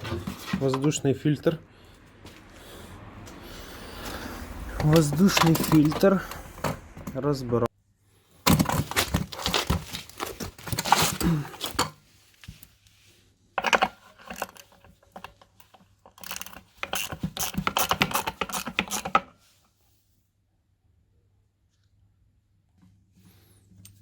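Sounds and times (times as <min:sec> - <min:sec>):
plastic and metal parts clicking: 0:13.6 - 0:19.2.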